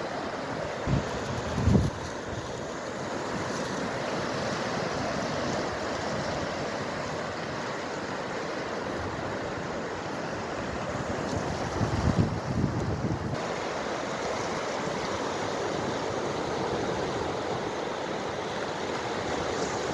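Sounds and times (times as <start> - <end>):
sea surf washing: 0.0 - 19.9
wind: 0.0 - 19.9
wind buffeting microphone: 0.7 - 2.8, 10.6 - 13.4.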